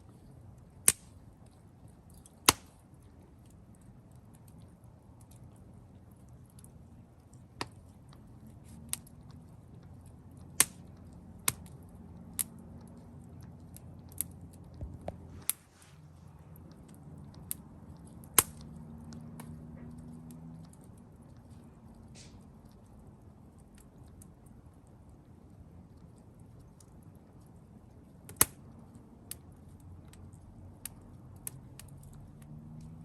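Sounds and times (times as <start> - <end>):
campfire pops and snaps: 0.8 - 1.1, 2.2 - 2.8, 10.5 - 11.7, 15.0 - 15.6, 18.3 - 18.7, 28.3 - 28.6.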